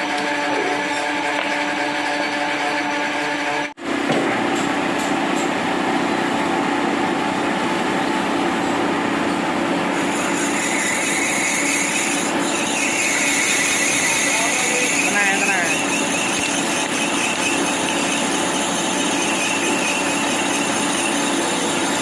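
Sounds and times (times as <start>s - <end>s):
machine tool humming: 6.4s - 22.0s.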